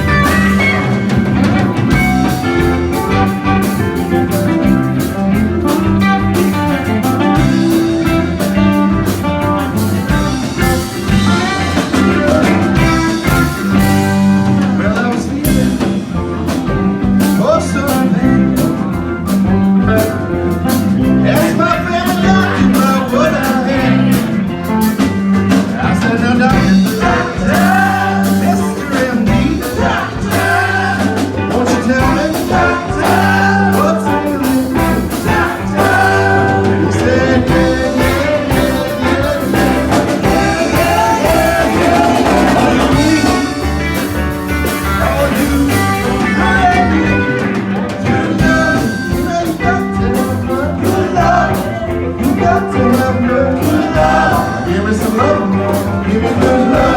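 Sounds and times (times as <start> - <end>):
band playing rock and roll: 0.0 - 56.9
steady bass line: 0.0 - 56.9
person singing: 2.0 - 19.1, 20.7 - 56.9.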